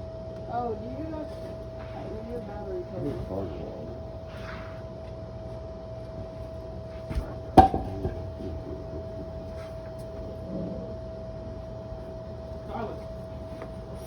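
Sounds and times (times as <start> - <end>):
faint steady hum: 0.0 - 14.0
sharp knock of hard object: 7.6 - 8.2.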